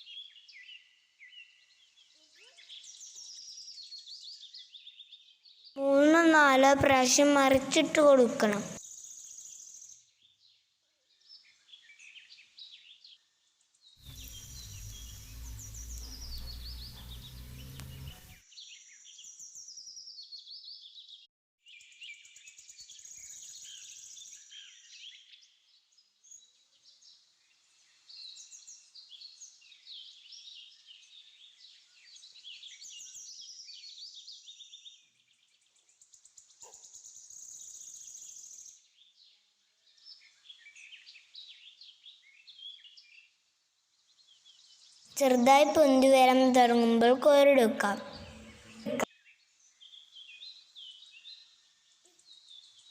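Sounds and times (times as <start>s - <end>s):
birds chirping and singing: 14.1s - 19.9s, 44.0s - 51.6s.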